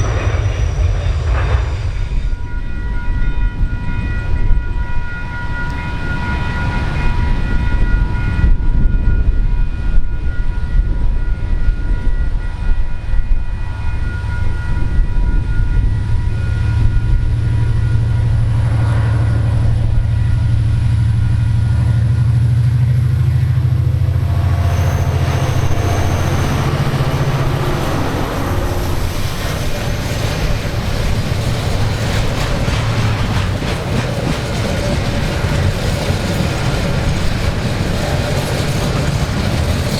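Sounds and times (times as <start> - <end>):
diesel engine rumble: 13.6 - 39.9
wagon wheels rolling on rails: 24.8 - 39.9.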